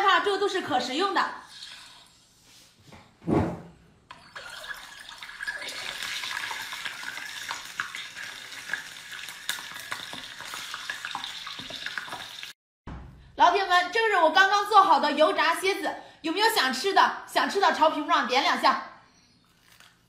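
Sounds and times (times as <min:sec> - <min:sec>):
deep-frying sizzle with crackles: 0:04.8 - 0:12.6.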